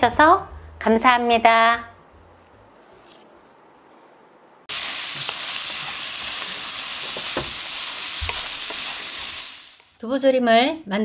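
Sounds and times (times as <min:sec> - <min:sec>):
tofu sizzling in a pan: 0:04.7 - 0:10.0.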